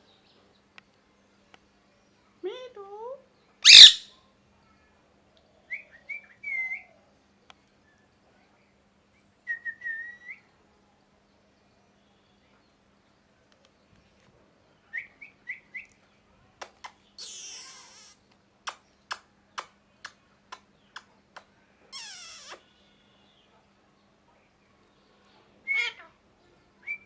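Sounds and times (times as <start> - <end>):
parakeet chirping: 3.6 - 4.0, 22.0 - 22.6.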